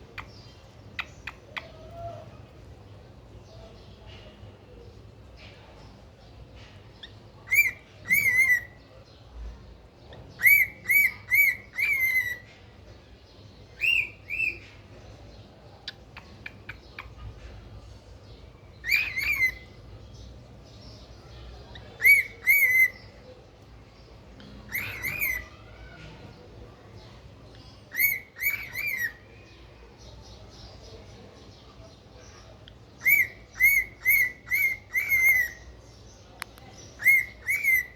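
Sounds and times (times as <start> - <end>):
cockatiel whistled chirps: 7.5 - 8.7, 10.4 - 12.4, 18.9 - 19.6, 27.9 - 29.2, 33.0 - 35.6, 37.0 - 37.9.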